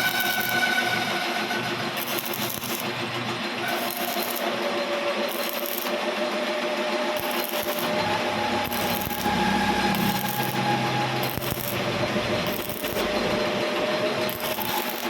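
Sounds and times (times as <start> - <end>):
ringing metallic tones: 0.0 - 3.0, 7.1 - 15.0
metal lathe cutting steel: 0.0 - 15.0.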